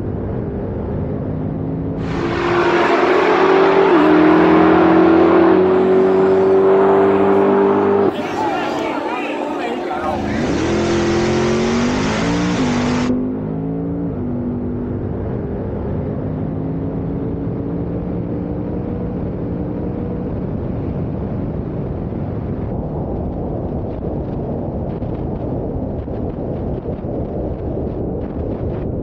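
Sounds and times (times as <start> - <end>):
car engine at speed: 0.0 - 29.0
wind rush: 2.0 - 13.5, 20.2 - 29.0.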